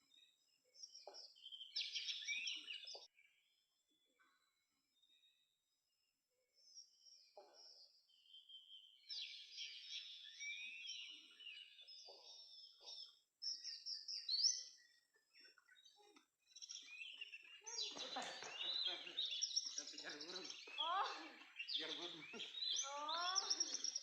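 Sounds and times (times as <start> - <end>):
bird singing whistles and chirps: 0.8 - 3.1, 8.1 - 15.0.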